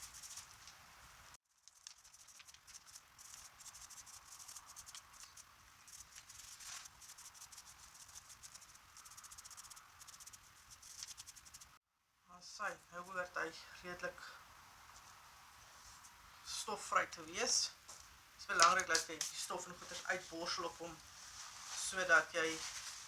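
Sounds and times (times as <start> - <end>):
toothbrush bristles scrubbing: 0.0 - 0.7, 1.6 - 11.8.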